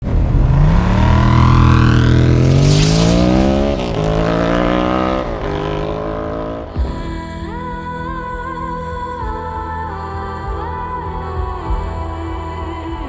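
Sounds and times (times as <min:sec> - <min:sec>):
motorcycle engine accelerating: 0:00.0 - 0:06.9.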